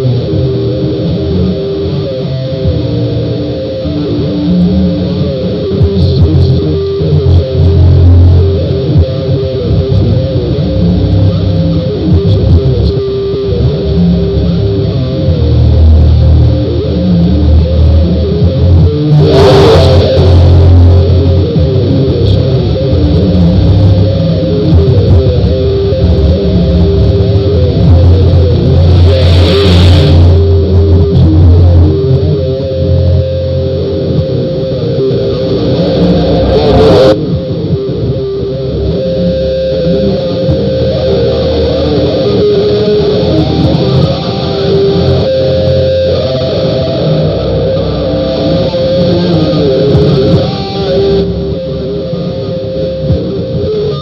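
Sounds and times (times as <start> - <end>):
distorted guitar music: 0.0 - 54.0
whooshing noise sweeps: 28.8 - 30.6.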